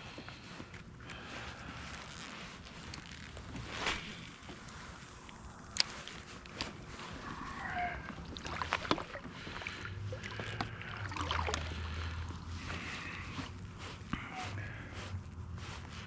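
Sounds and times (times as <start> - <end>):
water sloshing against hull: 4.4 - 13.6.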